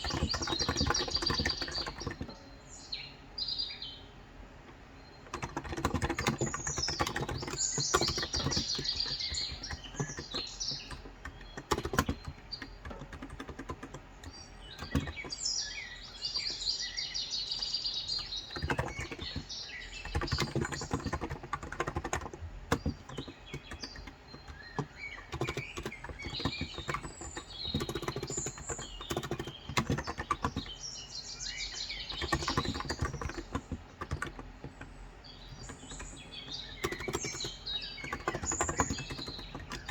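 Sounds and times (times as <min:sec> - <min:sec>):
keyboard typing: 0:00.0 - 0:02.5, 0:05.2 - 0:16.6, 0:17.6 - 0:39.9
birds chirping: 0:00.0 - 0:39.9.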